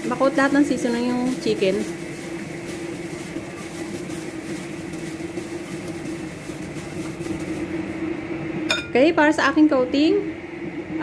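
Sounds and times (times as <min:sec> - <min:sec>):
hands mixing raw chicken: 0:00.0 - 0:08.1
steady hum: 0:00.0 - 0:11.0.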